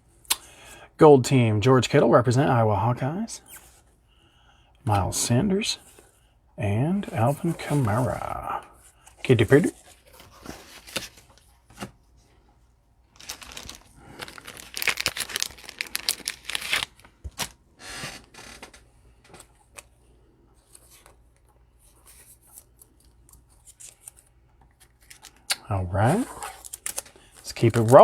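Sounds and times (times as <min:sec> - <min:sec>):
wrapper tearing and crinkling: 0:13.2 - 0:17.6, 0:26.5 - 0:28.0.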